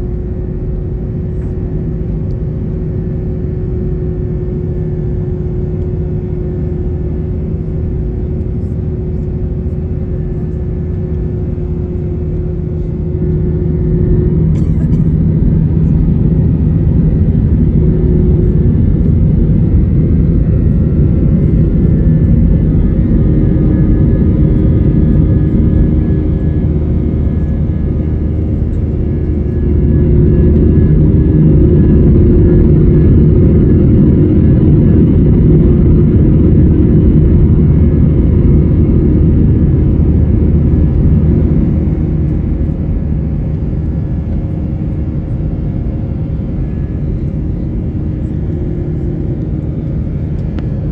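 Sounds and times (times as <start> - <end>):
jet engines deep rumble: 0.0 - 50.9.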